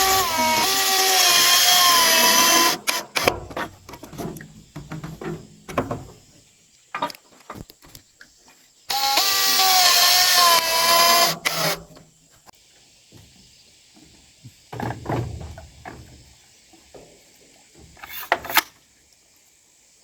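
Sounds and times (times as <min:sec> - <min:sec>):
power tool whining: 0:00.0 - 0:03.6, 0:08.9 - 0:11.9.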